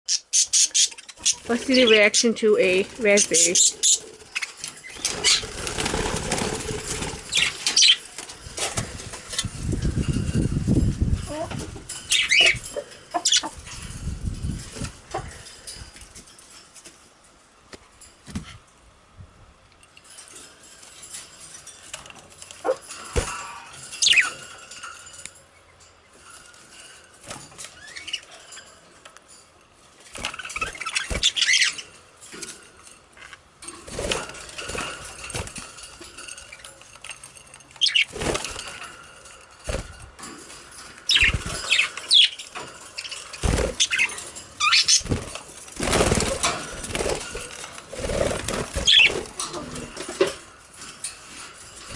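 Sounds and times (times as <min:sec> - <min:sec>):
budgerigars chirping: 0:00.1 - 0:02.4, 0:03.0 - 0:05.5, 0:41.1 - 0:42.4, 0:48.8 - 0:49.2
wing fluttering: 0:00.2 - 0:16.6, 0:30.0 - 0:51.9.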